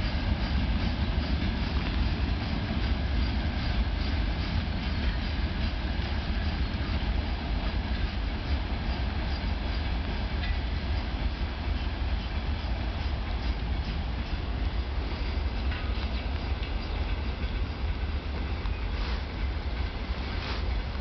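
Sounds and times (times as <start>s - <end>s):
freight train rumbling: 0.0s - 21.0s
wheels clattering over rail joints: 7.9s - 21.0s.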